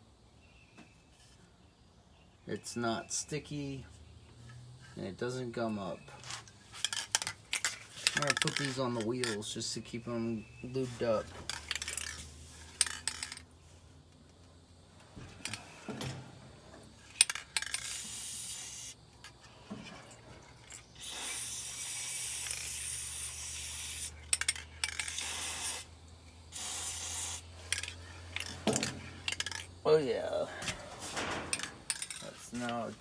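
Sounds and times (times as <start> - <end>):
handling clicks and knocks: 6.3 - 9.5, 27.7 - 29.8, 30.6 - 32.9
aerosol spray hissing: 17.8 - 19.0, 21.0 - 24.2, 25.0 - 27.9.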